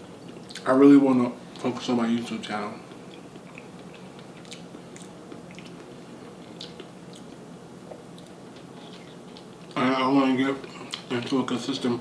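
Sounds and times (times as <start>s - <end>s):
quiet chewing: 0.2s - 0.7s, 2.8s - 9.8s.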